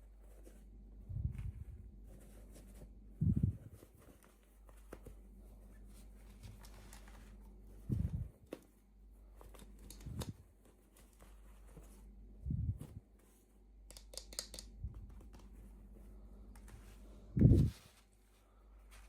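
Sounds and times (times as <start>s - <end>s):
small clicks: 13.9s - 15.5s.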